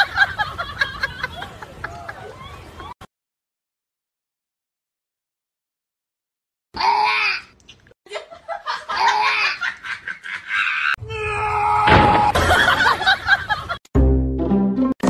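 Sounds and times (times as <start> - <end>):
person laughing: 8.1 - 11.0.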